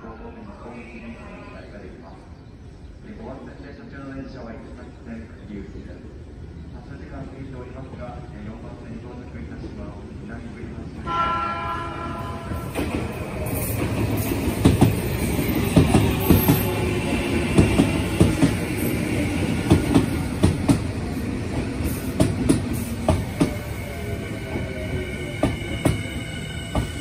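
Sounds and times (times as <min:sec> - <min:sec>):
train wheels clacking over rail joints: 0:13.8 - 0:16.7, 0:17.4 - 0:18.6.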